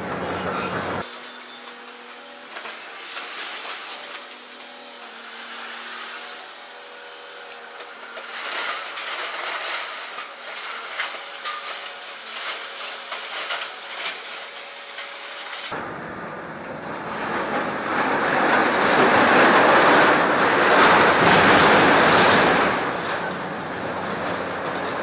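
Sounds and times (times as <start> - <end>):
debris crunching and clattering: 1.0 - 15.8.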